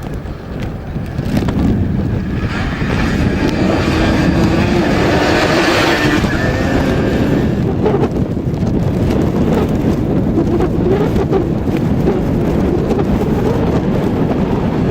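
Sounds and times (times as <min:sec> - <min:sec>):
wind rumbling on microphone: 0:00.0 - 0:14.9
motorcycle engine passing: 0:01.1 - 0:08.1.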